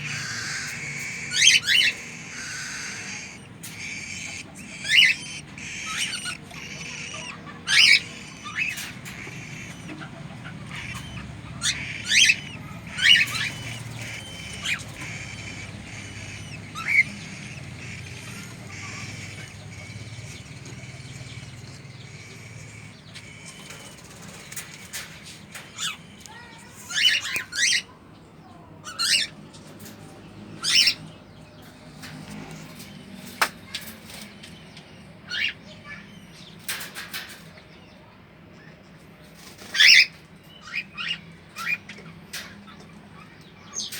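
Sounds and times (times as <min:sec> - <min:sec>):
cockatiel squawking: 0:00.0 - 0:20.2, 0:25.8 - 0:28.0
low background hum: 0:00.0 - 0:43.9.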